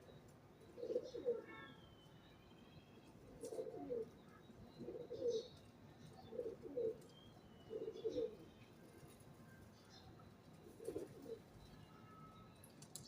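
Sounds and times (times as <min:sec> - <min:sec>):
small birds chirping: 0:00.0 - 0:02.8, 0:03.4 - 0:13.0
pigeon cooing: 0:00.7 - 0:01.4, 0:03.4 - 0:04.1, 0:04.8 - 0:05.5, 0:06.3 - 0:07.0, 0:07.7 - 0:08.4, 0:10.6 - 0:11.5.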